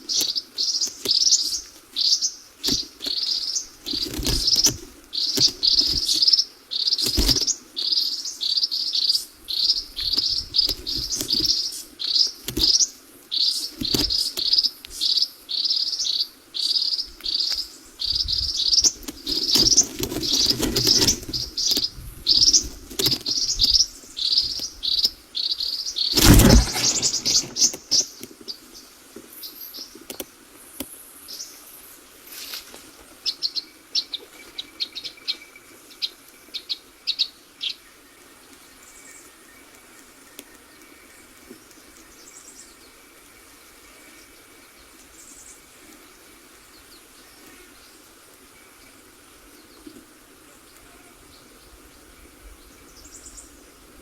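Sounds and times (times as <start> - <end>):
bird chirping: 0.1 - 28.2
sharp thump: 26.2 - 27.8.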